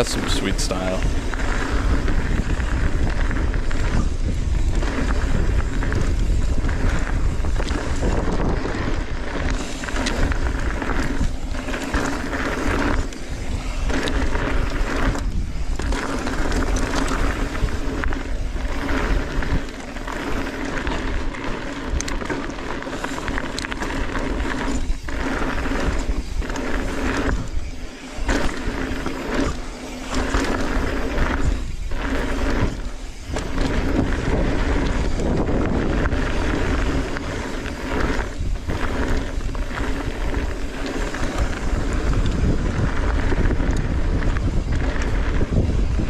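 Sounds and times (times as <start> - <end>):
bike tyres rolling on dirt: 0.0 - 46.0
wind rushing over microphone: 0.0 - 46.0.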